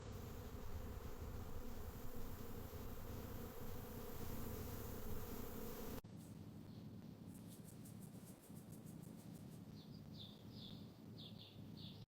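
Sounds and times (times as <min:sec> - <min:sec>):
insect buzzing: 0:00.0 - 0:06.0
outdoor background: 0:00.0 - 0:12.0.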